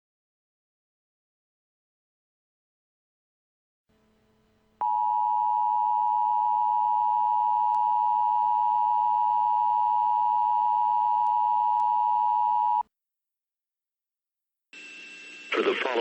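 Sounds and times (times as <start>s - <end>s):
electronic alarm tone: 4.8s - 12.8s.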